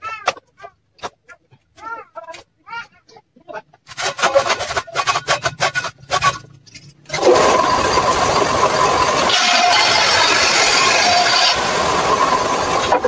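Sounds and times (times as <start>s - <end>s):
scraping strokes on wood: 3.9s - 13.0s
table saw whining: 4.0s - 13.0s.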